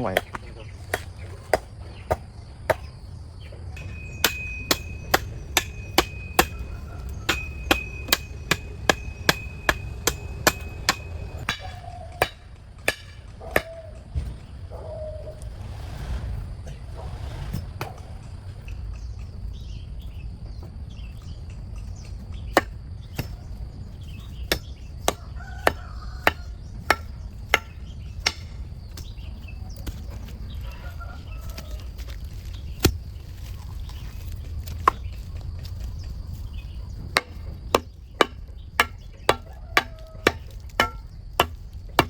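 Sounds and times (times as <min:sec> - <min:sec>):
tool chopping wood: 0:00.0 - 0:03.0, 0:03.8 - 0:14.4, 0:22.0 - 0:30.1, 0:32.0 - 0:35.7, 0:37.1 - 0:42.0
steady low rumble: 0:00.2 - 0:42.0.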